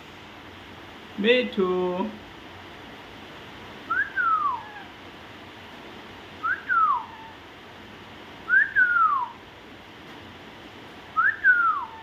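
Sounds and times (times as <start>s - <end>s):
parrot whistling: 3.9s - 4.9s, 6.4s - 7.4s, 8.5s - 9.4s, 11.2s - 12.0s.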